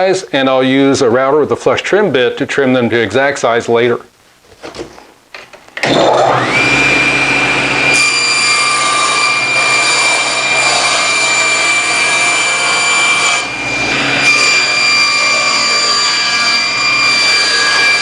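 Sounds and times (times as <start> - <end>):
power saw motor whining: 5.8 - 18.0.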